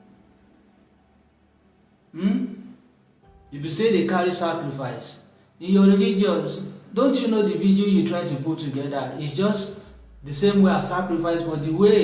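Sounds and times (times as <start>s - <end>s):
faint hiss: 0.0s - 12.0s
soft background music: 0.0s - 12.0s.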